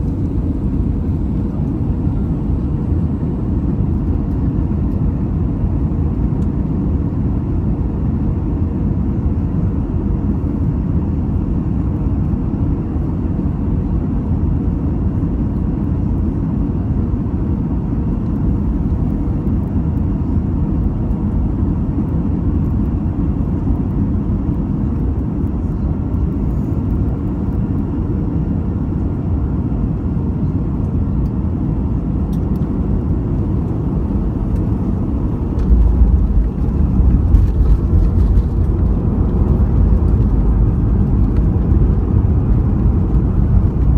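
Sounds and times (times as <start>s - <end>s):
air rushing along fuselage: 0.0s - 12.6s, 17.2s - 43.9s
aircraft engines droning: 0.0s - 43.9s.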